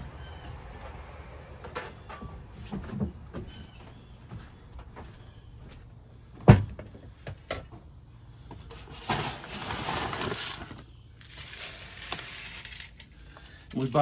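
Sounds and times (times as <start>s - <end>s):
seed bag rustling: 8.9s - 14.0s.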